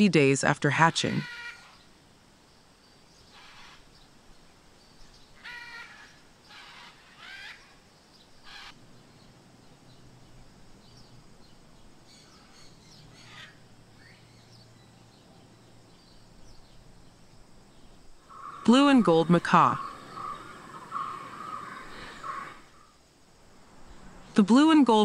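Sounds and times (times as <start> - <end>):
harsh bird calls: 0.9 - 2.0, 3.1 - 4.1, 4.9 - 9.3, 10.8 - 14.9, 18.2 - 23.0.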